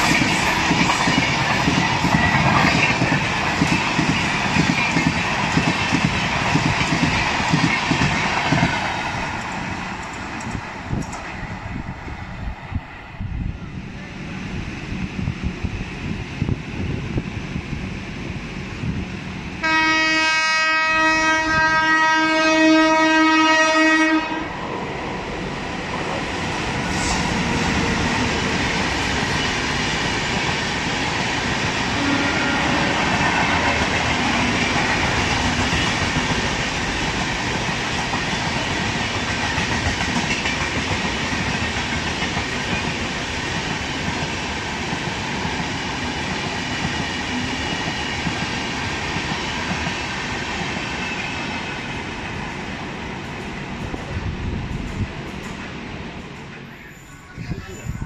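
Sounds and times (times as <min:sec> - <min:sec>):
train wheels rumbling on rail: 0:00.0 - 0:58.0
train horn blast: 0:19.6 - 0:24.5, 0:31.9 - 0:33.9.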